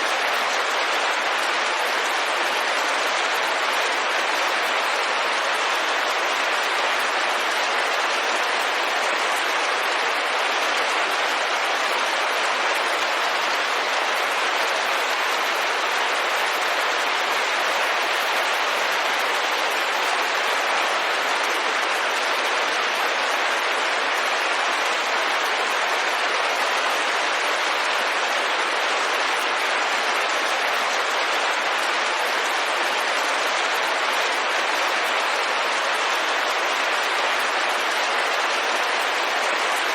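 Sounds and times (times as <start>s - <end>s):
rain falling on a window: 0.0s - 39.9s.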